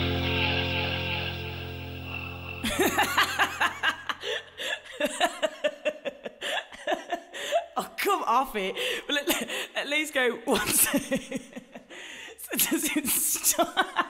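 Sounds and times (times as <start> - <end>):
background music: 0.0 - 3.9
men laughing: 0.0 - 7.7.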